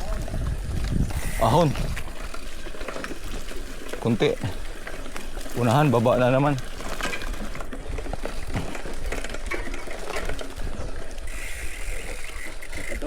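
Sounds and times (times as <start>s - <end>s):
wind on camera: 0.0s - 3.4s
bike rattles and clicks: 0.0s - 13.0s
bike tyres on rough trail: 0.0s - 13.0s.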